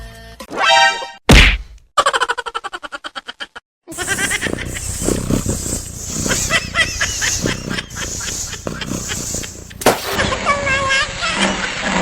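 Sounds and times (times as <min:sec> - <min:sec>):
rapid animal calls: 0:03.9 - 0:10.2.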